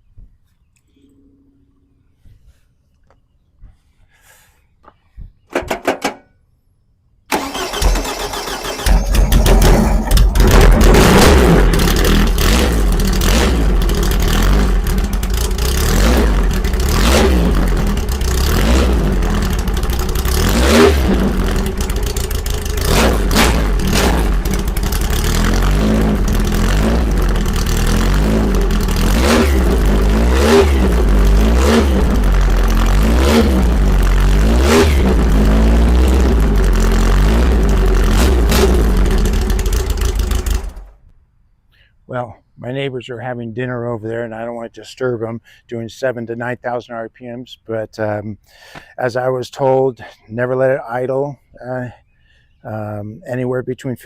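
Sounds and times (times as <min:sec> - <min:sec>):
race engine revving: 0:07.4 - 0:40.8.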